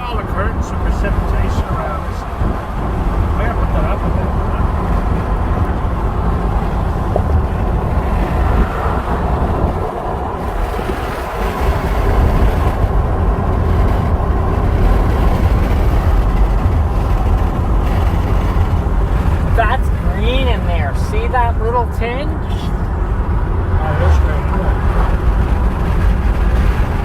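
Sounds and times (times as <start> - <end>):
car road and engine noise: 0.0 - 27.0
wind: 0.0 - 27.0.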